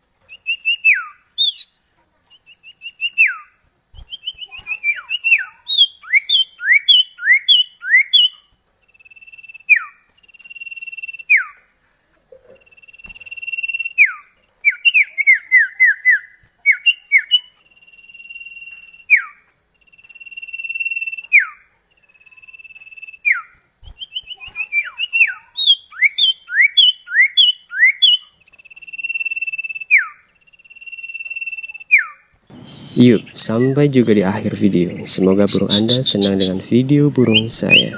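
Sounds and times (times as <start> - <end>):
bird whistling and singing: 32.0 - 37.9.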